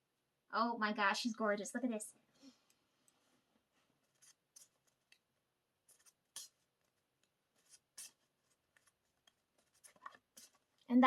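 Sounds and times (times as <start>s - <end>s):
faint paper rustles: 3.0s - 10.9s.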